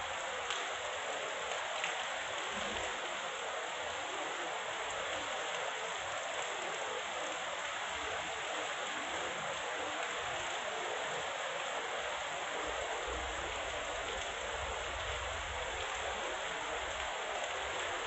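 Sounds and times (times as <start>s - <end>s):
heavy rain downpour: 0.0s - 18.0s.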